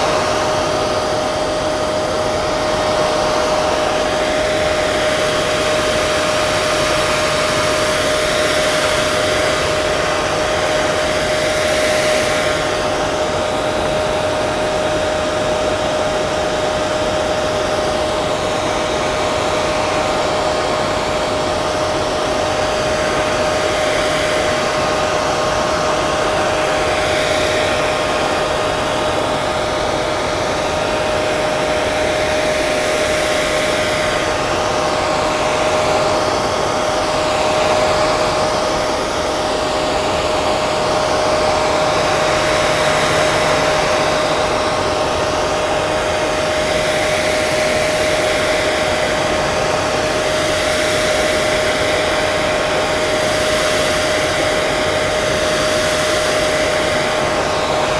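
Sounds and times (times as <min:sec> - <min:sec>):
hair dryer running: 0:00.0 - 0:57.9.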